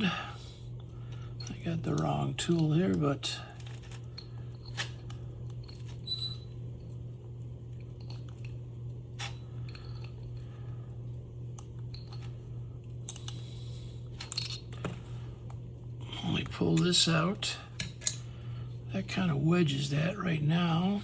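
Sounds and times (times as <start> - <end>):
steady low hum: 0.0 - 21.0
metallic tool clicks and clinks: 17.8 - 18.3.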